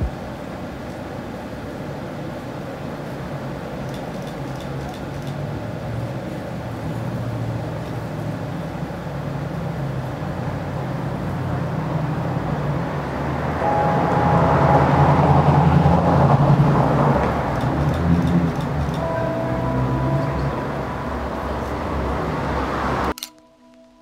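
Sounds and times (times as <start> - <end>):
vehicle engine running: 5.1 - 23.1.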